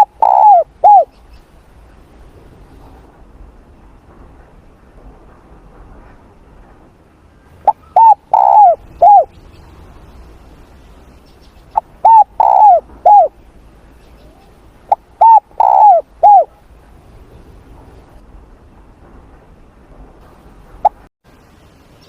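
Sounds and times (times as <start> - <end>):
dove cooing: 0.0 - 1.1, 7.7 - 9.4, 11.8 - 13.4, 14.4 - 16.6.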